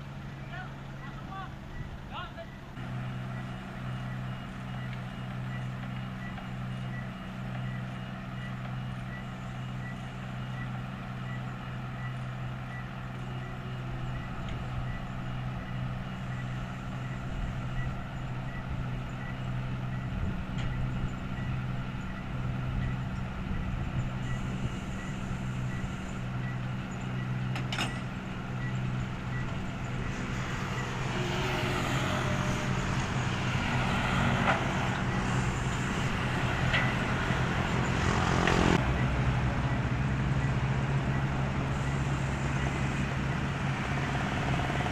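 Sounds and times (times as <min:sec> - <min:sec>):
diesel machine running: 0:00.0 - 0:44.9
reversing alarm beeps: 0:00.3 - 0:32.6, 0:35.0 - 0:44.8
rough mechanical noise: 0:13.2 - 0:44.9.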